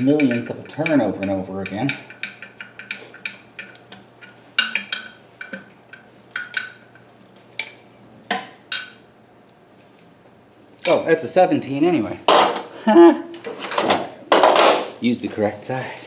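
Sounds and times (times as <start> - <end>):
metal tools clinking: 0.0 - 9.0, 10.8 - 11.3, 13.6 - 14.9.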